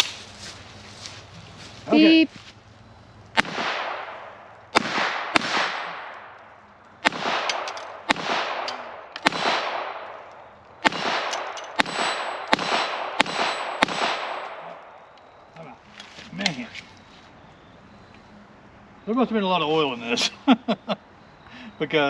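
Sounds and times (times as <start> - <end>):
pistol shots with echo: 3.4 - 6.4, 7.0 - 15.1.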